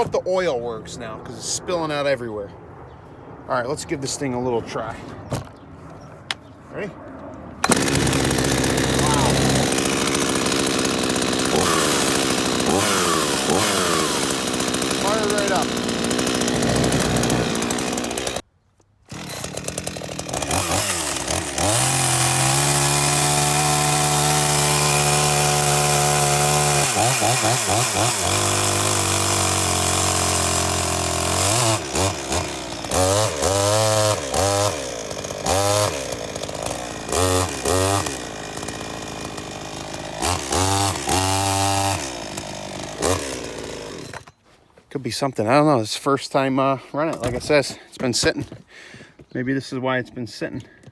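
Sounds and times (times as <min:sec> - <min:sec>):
chainsaw revving and idling: 0:07.6 - 0:18.5, 0:19.1 - 0:44.4.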